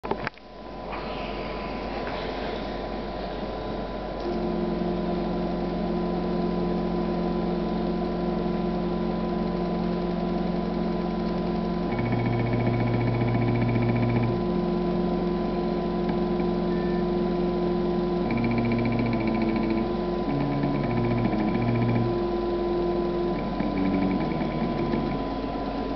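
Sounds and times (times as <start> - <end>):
stepper motors humming: 1.1 - 25.9.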